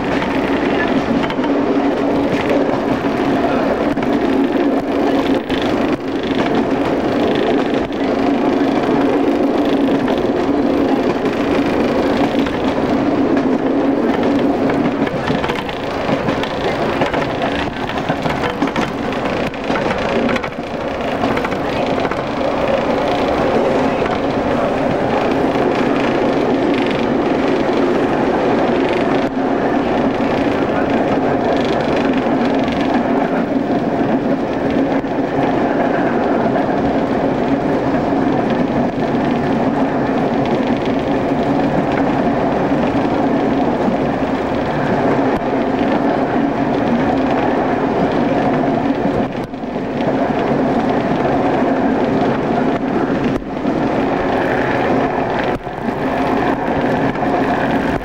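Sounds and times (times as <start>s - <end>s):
train wheels on rails: 0.0s - 58.0s
diesel engine drone: 4.6s - 31.4s.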